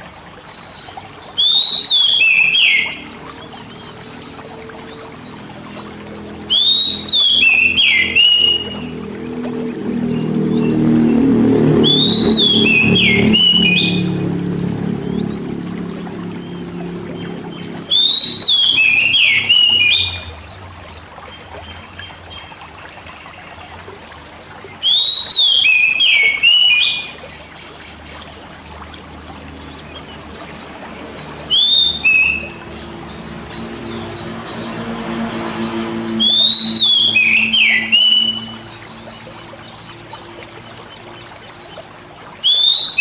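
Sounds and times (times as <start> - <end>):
trickling water: 0.0 - 43.0
bird singing whistles: 1.4 - 3.0, 6.5 - 8.8, 11.8 - 14.2, 17.9 - 20.3, 24.8 - 27.2, 31.5 - 32.6, 36.2 - 38.8, 42.4 - 43.0.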